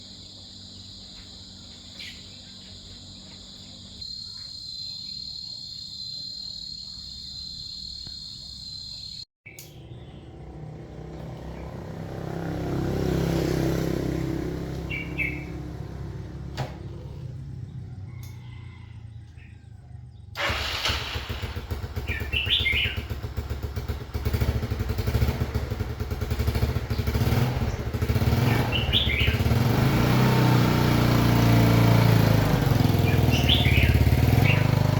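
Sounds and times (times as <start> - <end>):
bird chirps: 0.0 - 10.6, 14.6 - 16.1, 22.0 - 23.2, 26.9 - 29.6, 32.8 - 34.9
small engine running: 20.4 - 34.9.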